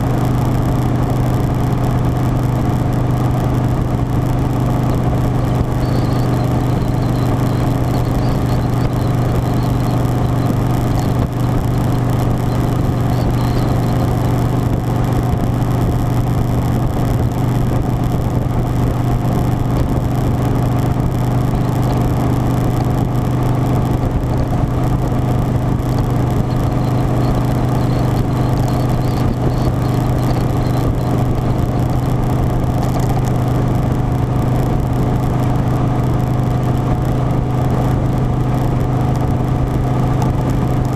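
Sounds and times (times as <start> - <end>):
motorcycle engine running steadily: 0.0 - 40.9.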